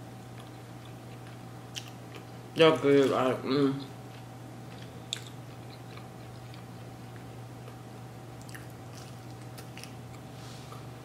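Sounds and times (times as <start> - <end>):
person chewing: 0.3 - 2.4, 3.9 - 7.8, 8.4 - 10.3.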